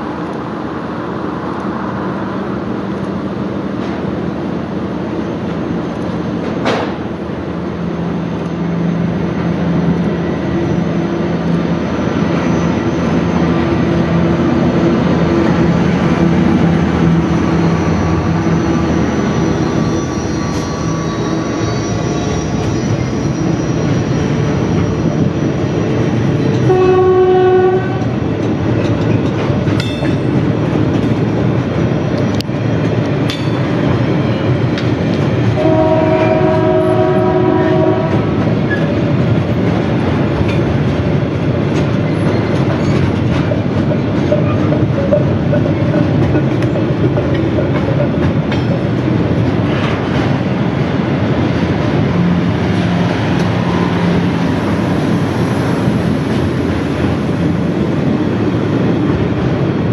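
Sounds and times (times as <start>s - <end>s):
freight train wheels on rails: 0.0s - 59.9s
train wagons clanking: 5.2s - 7.4s, 8.4s - 59.9s
locomotive horn: 26.6s - 28.2s, 35.6s - 38.4s.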